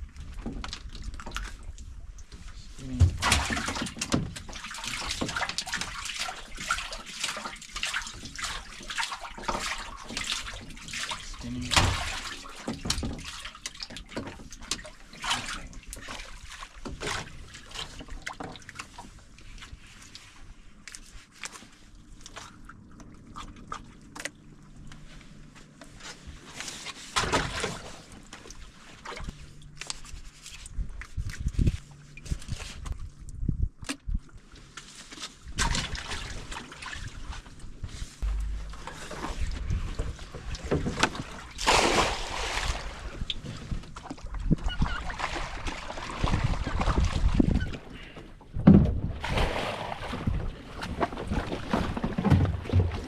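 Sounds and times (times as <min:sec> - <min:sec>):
water splashing and sloshing: 0:00.0 - 0:53.0
faint steady hum: 0:37.9 - 0:43.9.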